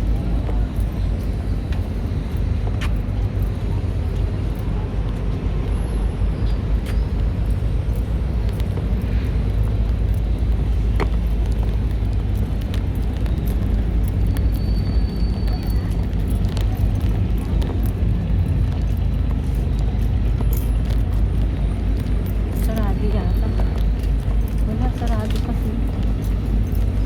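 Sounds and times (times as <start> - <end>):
city ambience rumble: 0.0 - 27.0.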